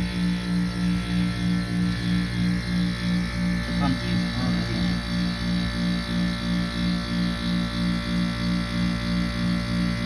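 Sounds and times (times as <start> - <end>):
air conditioner humming: 0.0 - 10.0.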